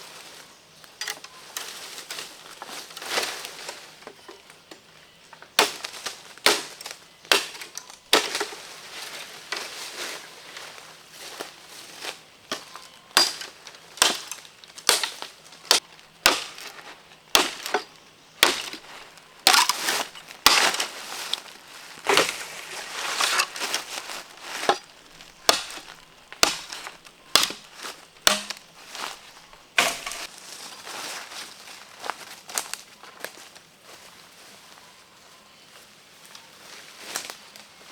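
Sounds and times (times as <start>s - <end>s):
sharp crunching snaps: 13.2s - 30.3s.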